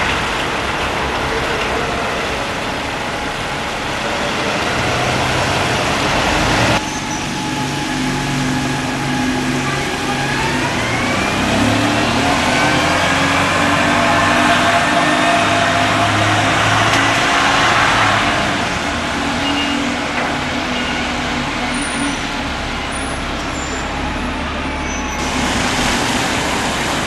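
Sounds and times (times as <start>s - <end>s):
diesel engine rumbling: 0.0s - 27.0s.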